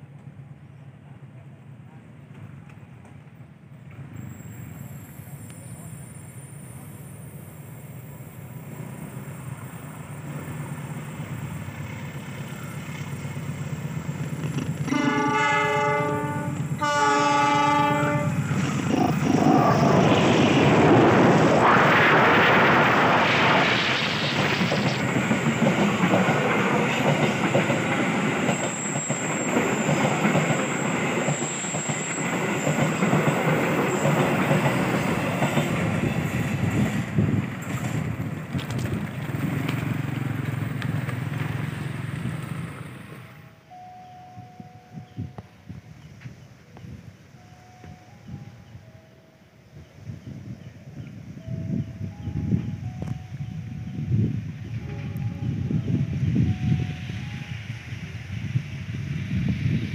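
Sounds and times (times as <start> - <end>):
coaches rolling on rails: 2.2 - 59.9
locomotive rumbling: 3.7 - 49.1
train horn blasts: 14.8 - 18.6, 54.7 - 57.2.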